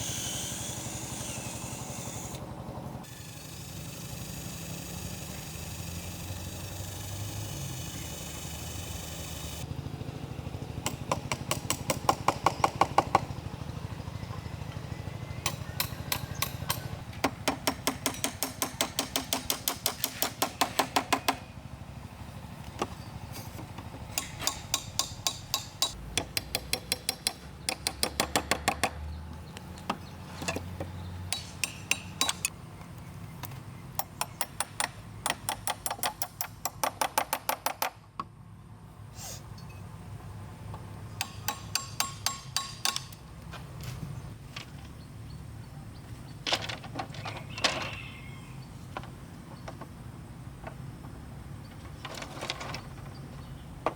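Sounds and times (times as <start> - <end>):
hammer striking bamboo: 10.8 - 13.3, 15.4 - 21.5, 24.1 - 29.0, 31.3 - 32.5, 34.0 - 38.0, 41.2 - 43.2.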